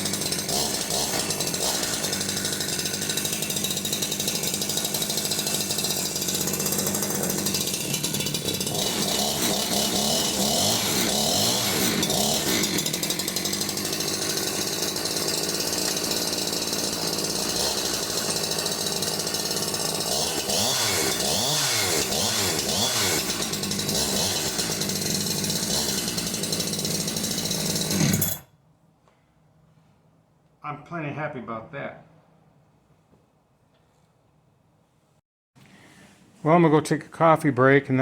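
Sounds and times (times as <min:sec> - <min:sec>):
chainsaw engine revving: 0:00.0 - 0:28.4.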